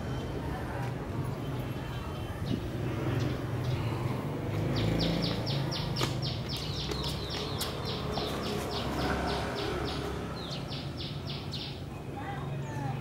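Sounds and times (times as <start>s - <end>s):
bird chirping rapidly: 4.7s - 11.9s.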